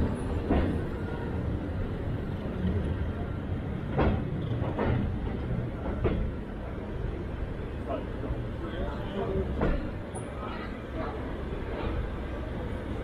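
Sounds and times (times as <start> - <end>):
railway carriage rumbling: 0.0 - 13.0
wheels clunking over rail joints: 3.8 - 6.4.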